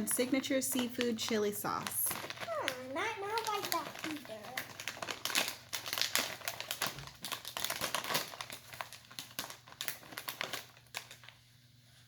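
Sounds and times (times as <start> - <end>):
crisp bag crinkling: 0.0 - 11.5.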